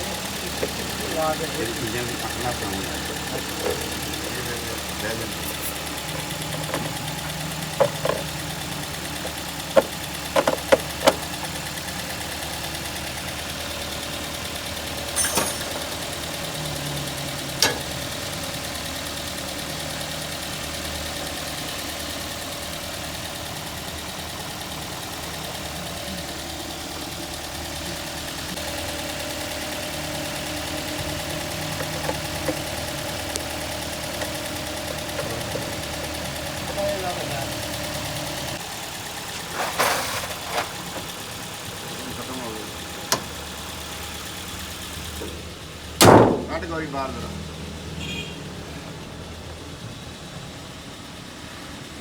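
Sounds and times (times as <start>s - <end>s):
car engine idling: 0.0s - 52.0s
sharp metallic clinks: 15.1s - 16.2s.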